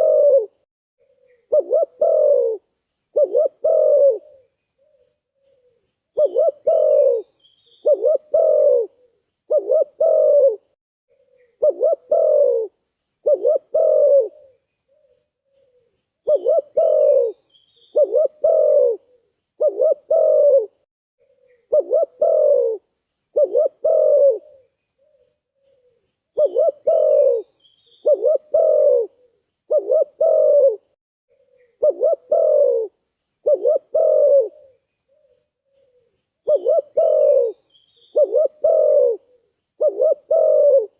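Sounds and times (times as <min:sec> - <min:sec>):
dove cooing: 0:00.0 - 0:40.9
small bird chirping: 0:01.0 - 0:10.5, 0:11.1 - 0:20.6, 0:21.2 - 0:40.9.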